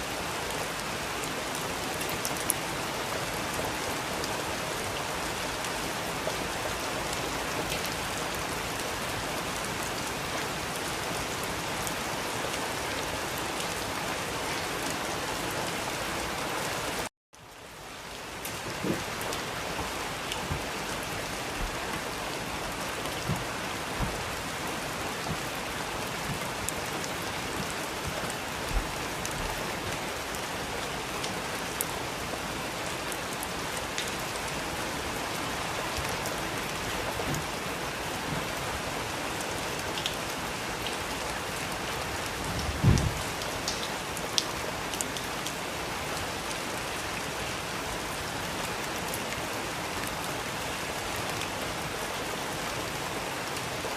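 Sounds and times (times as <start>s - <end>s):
steady rain falling: 0.0s - 53.9s
raindrops ticking: 18.2s - 29.9s
low thump: 23.2s - 24.3s.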